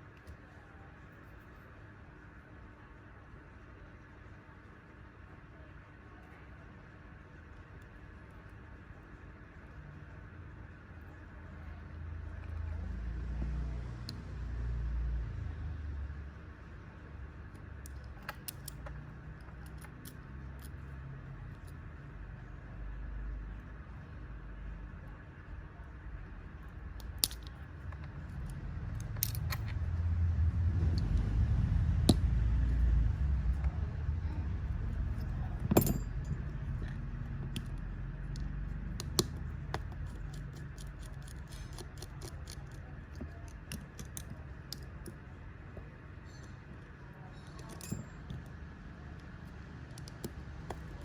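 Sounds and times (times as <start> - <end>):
low rumble: 27.8 - 38.8.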